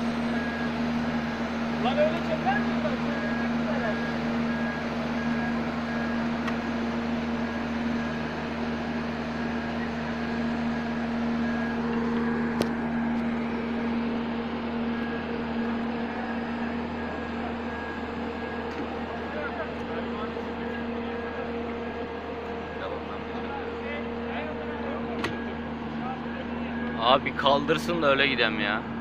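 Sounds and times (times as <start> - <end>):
vehicle engine running: 0.0 - 29.0
high beep: 0.1 - 1.0, 1.8 - 6.4.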